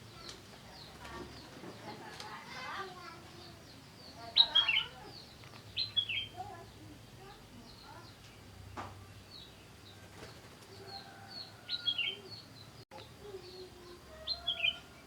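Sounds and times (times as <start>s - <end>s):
small birds chirping: 0.0s - 15.0s
sharp bird calls: 3.3s - 6.6s, 7.2s - 15.0s.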